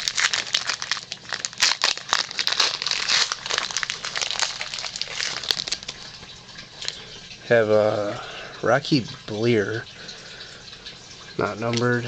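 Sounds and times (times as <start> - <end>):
plastic wrapper crinkling: 0.0 - 7.0.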